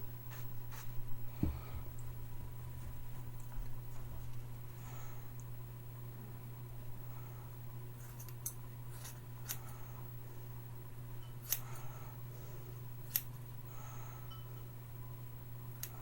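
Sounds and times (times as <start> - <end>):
steady low hum: 0.0 - 16.0
scissors snipping hair: 11.4 - 11.8, 13.1 - 13.3.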